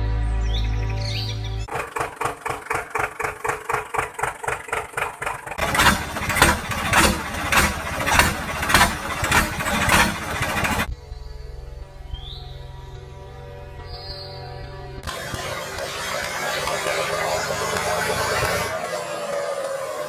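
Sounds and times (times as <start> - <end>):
engine cranking and running: 1.7 - 10.9, 15.0 - 20.0.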